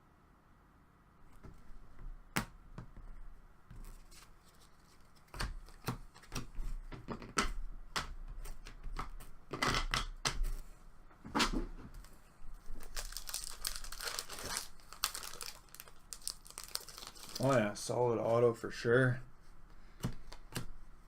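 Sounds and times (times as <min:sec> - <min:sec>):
cards clicking and rustling: 0:03.8 - 0:10.6, 0:12.8 - 0:17.7, 0:20.0 - 0:20.7
packaging crinkle: 0:12.6 - 0:17.8.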